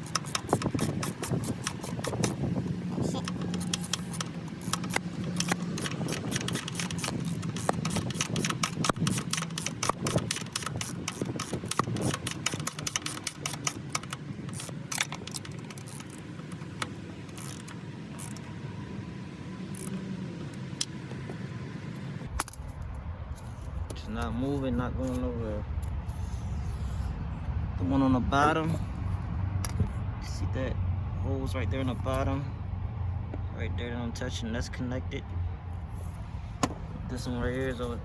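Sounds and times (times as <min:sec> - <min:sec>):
tool clicking and rattling: 0:00.0 - 0:18.5
steady low hum: 0:00.0 - 0:38.0.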